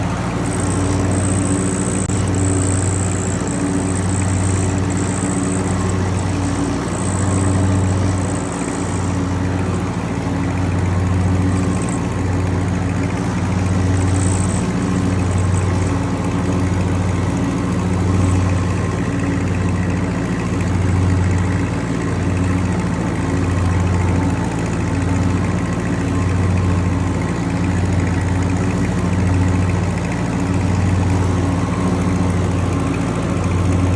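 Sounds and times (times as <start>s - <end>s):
faint high whine: 0.0s - 33.9s
tractor engine running: 0.0s - 33.9s.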